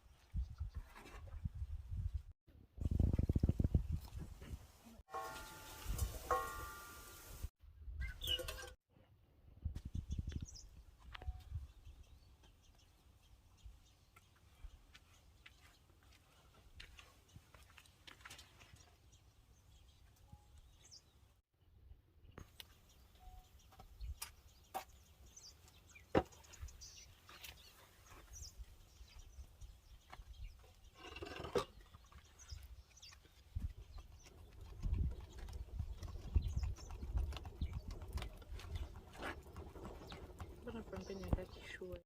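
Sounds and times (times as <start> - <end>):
faint bird chirps: 8.0 - 8.7, 22.7 - 33.7.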